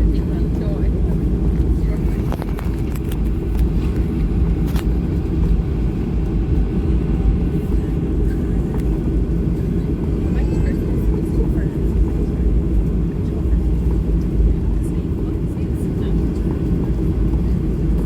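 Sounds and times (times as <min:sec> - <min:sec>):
jet engine and airflow rumble: 0:00.0 - 0:18.0.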